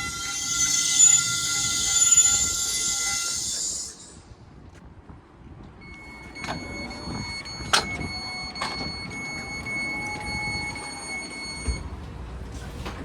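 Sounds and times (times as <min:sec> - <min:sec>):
high electronic door alert tone: 0:05.8 - 0:11.9.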